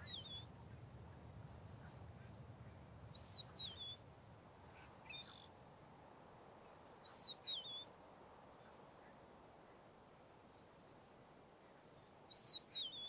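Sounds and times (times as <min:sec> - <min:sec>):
bird whistled call: 0:00.0 - 0:00.5, 0:03.2 - 0:04.0, 0:07.1 - 0:07.9, 0:12.3 - 0:13.0
quiet outdoor background: 0:00.0 - 0:13.0.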